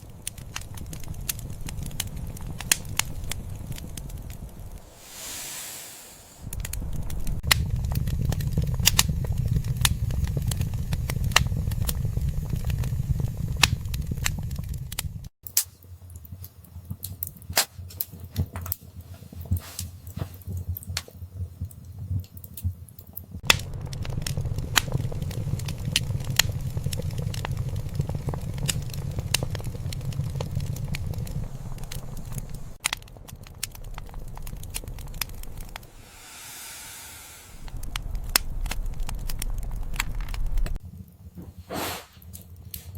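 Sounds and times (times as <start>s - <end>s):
low rumble: 0.0s - 15.3s, 23.4s - 40.8s
wood fire crackling and popping: 0.0s - 36.0s, 37.6s - 42.9s.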